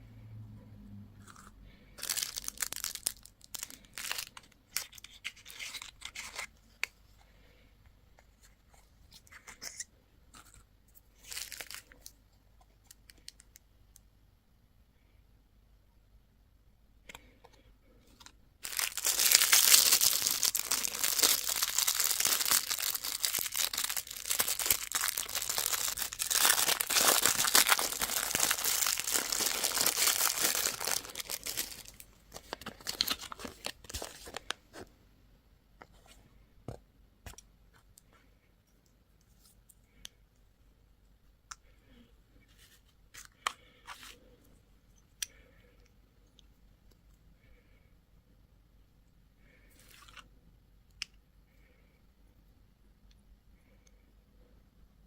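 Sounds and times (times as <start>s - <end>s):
packaging tearing and crinkling: 2.0s - 6.5s, 18.6s - 34.6s
small crinkles and clicks: 11.2s - 14.0s.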